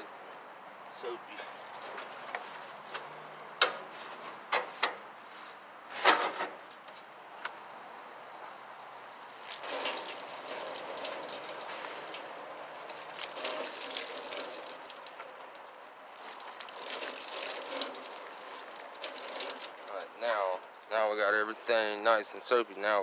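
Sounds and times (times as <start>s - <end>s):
wet rag sloshing soapy water: 9.3s - 20.9s.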